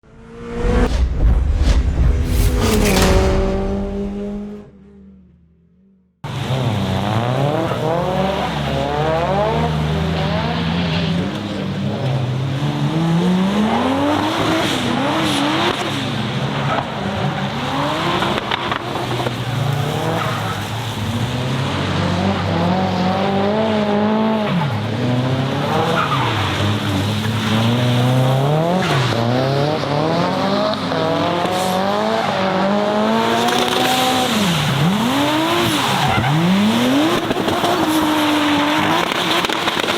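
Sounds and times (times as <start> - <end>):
car engine revving: 0.0 - 5.8.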